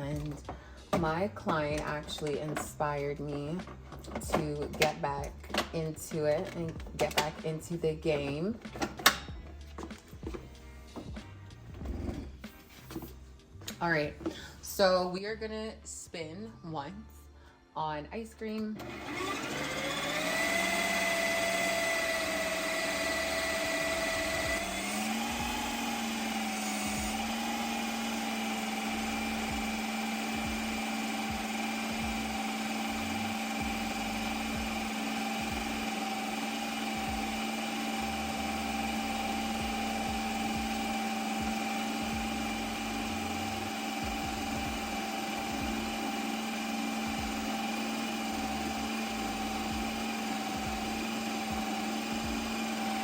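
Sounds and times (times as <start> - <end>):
ice cream machine motor whine: 18.8 - 53.0.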